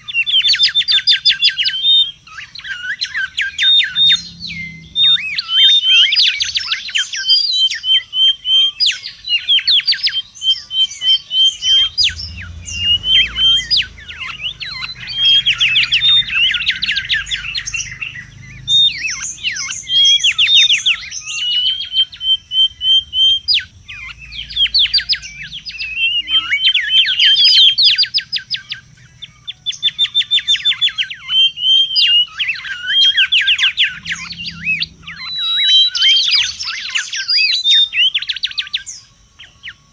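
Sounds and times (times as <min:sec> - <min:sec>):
bird whistling and trilling: 0:00.0 - 0:39.9.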